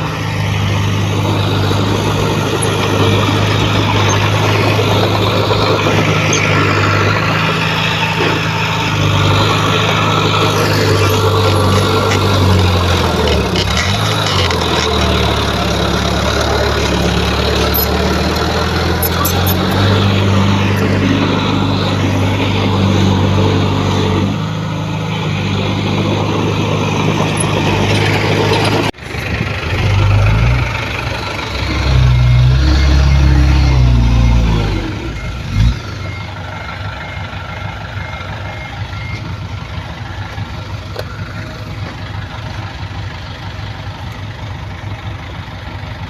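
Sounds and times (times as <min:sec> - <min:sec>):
heavy diesel engine running: 0:00.0 - 0:46.0.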